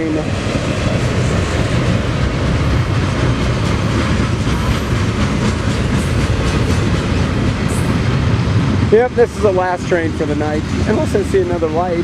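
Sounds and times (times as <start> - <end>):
train cars rumbling past: 0.0 - 12.0
wheels clicking over rail joints: 0.8 - 8.4.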